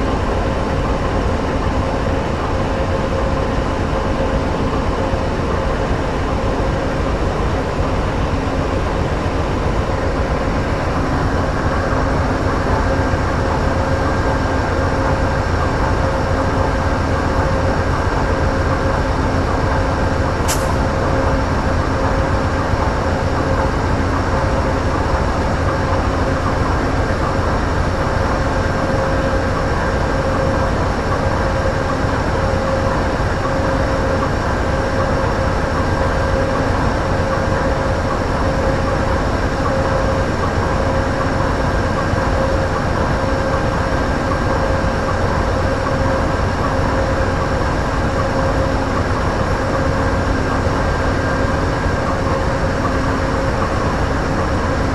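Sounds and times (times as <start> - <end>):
diesel locomotive engine drone: 0.0 - 54.9
steady hum: 0.0 - 54.9
short click: 20.5 - 20.8.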